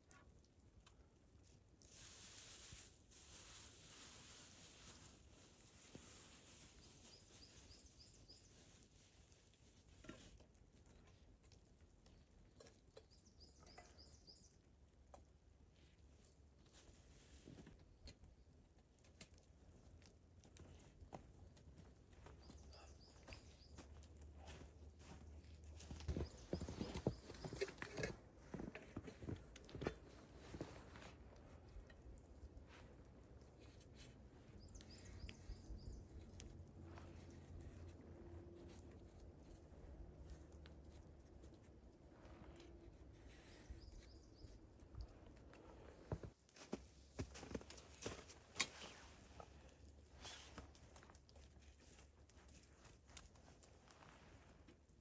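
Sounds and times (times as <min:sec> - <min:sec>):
faint clicks and snaps: 0:00.0 - 0:01.1, 0:18.0 - 0:21.7
faint wilderness hiss: 0:01.5 - 0:09.7
small bird chirping: 0:06.2 - 0:09.1, 0:13.0 - 0:14.6, 0:22.3 - 0:24.0, 0:34.4 - 0:36.4, 0:43.3 - 0:44.7.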